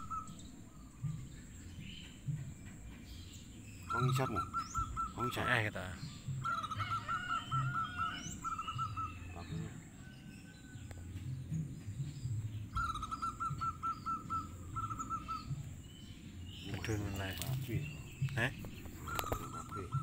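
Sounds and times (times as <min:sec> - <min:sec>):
dove cooing: 0:00.0 - 0:01.3, 0:03.9 - 0:10.1, 0:12.7 - 0:15.8, 0:16.8 - 0:20.0.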